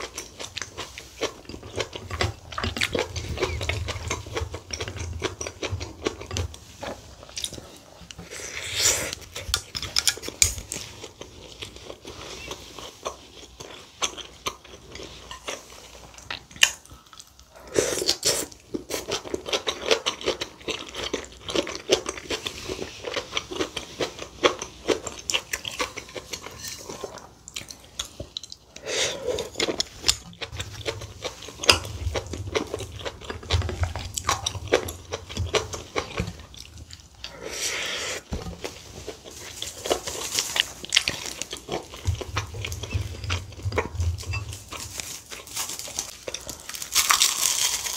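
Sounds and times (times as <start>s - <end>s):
wet chewing: 0.0s - 47.9s
utensils clinking against bowl: 41.9s - 45.2s.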